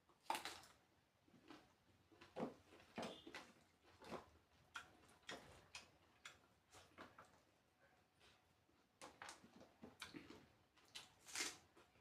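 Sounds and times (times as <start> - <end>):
chewing clicks and mouth smacks: 3.3 - 7.4.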